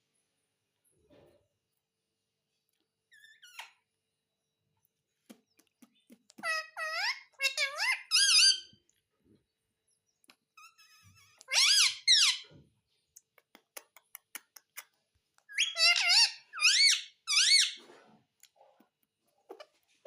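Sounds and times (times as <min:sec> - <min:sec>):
parakeet squawking: 0:06.4 - 0:08.7, 0:10.6 - 0:12.5, 0:15.5 - 0:17.8.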